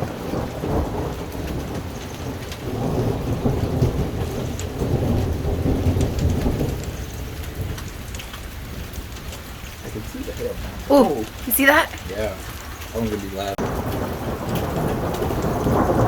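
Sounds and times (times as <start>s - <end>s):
steady rain: 0.0s - 16.0s
thunder rumbling: 13.6s - 16.0s.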